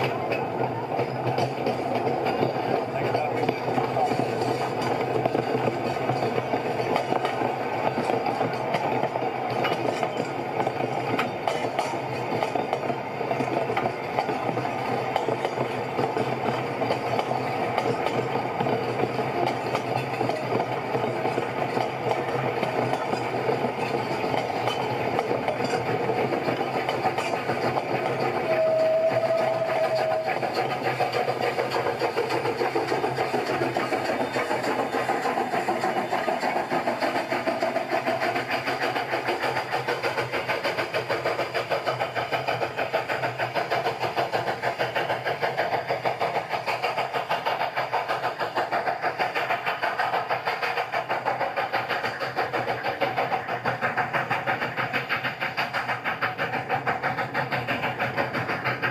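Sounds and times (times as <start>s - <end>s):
engine running with pulsing clatter: 0.0s - 58.9s.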